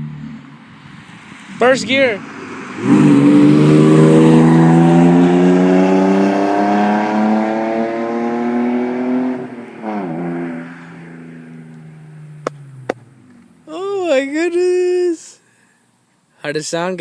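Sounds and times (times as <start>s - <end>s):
car engine revving through straight exhaust: 2.8s - 13.3s.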